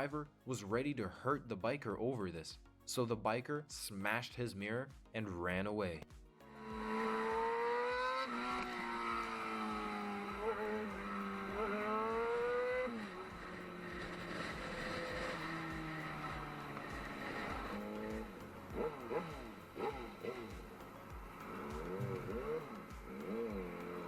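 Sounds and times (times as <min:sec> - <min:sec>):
motorcycle engine accelerating: 0:06.3 - 0:24.0.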